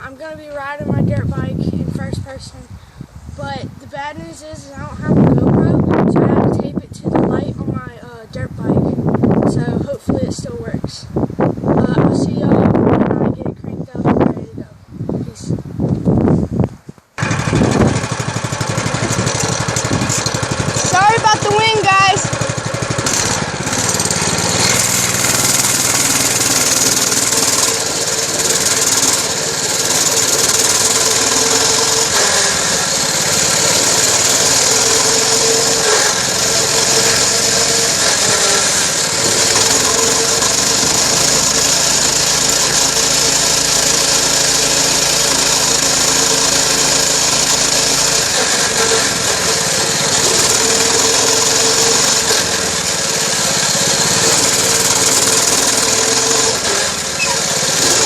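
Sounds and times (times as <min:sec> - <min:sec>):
wind buffeting microphone: 0:00.2 - 0:21.6
dirt bike engine running: 0:17.2 - 0:58.0.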